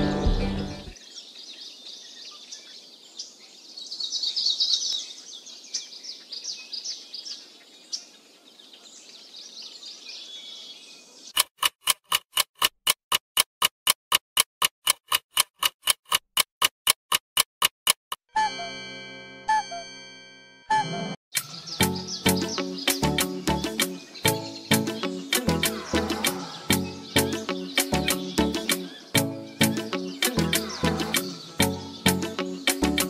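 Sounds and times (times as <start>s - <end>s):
rapid even ticking: 11.4s - 18.2s
birds chirping: 20.7s - 33.0s.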